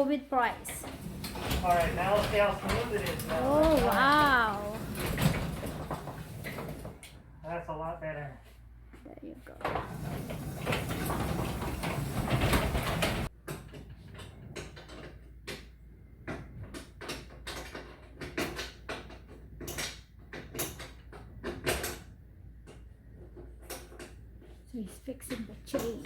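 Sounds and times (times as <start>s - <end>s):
garage door moving along track: 0.3s - 7.1s, 9.7s - 13.3s.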